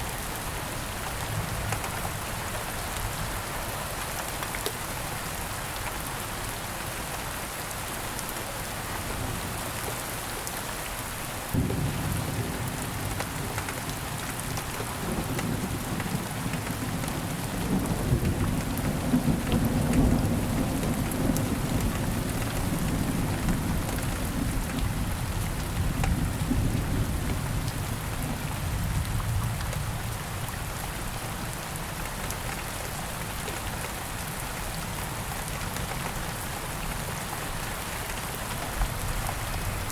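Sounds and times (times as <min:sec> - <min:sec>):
steady rain falling: 0:00.0 - 0:39.9
thunder rolling: 0:11.6 - 0:13.9.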